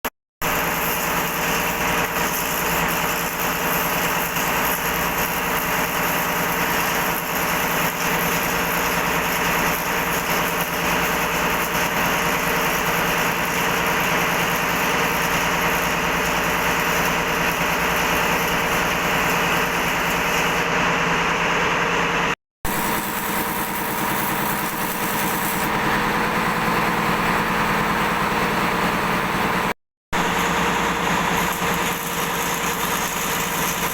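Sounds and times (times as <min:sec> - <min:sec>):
machinery drone: 0:18.4 - 0:33.9.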